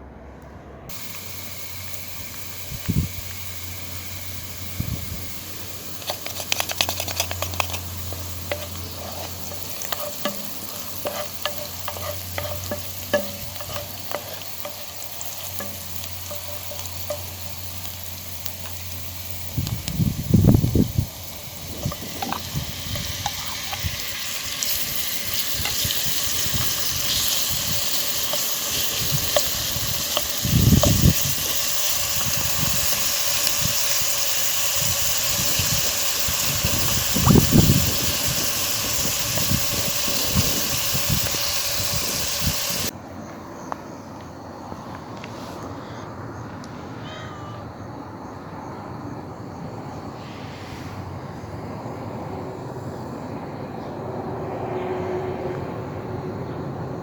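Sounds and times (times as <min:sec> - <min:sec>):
food sizzling in a pan: 0:00.9 - 0:42.9.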